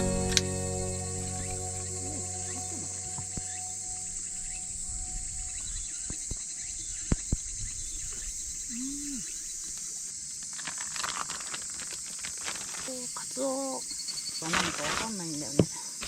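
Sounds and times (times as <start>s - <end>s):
background music: 0.0s - 4.8s
crickets chirring: 1.8s - 16.0s.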